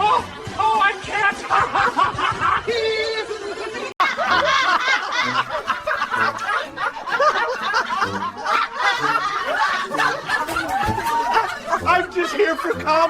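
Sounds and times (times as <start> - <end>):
people laughing: 0.0 - 13.0.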